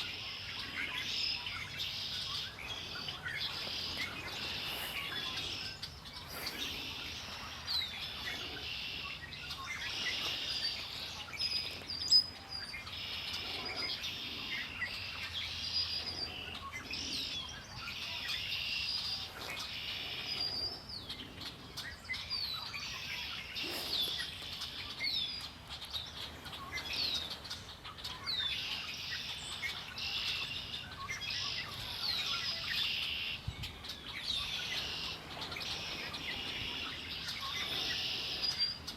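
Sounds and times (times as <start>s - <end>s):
songbirds singing and chirping: 0.0s - 38.9s.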